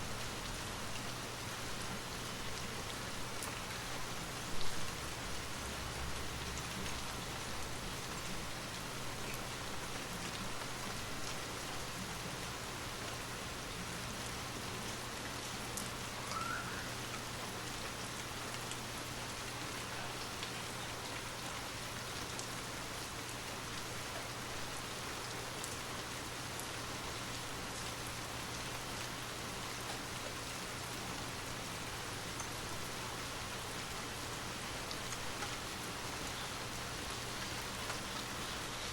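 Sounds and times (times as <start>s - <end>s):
steady rain hissing: 0.0s - 38.9s
raindrops ticking: 34.6s - 38.9s.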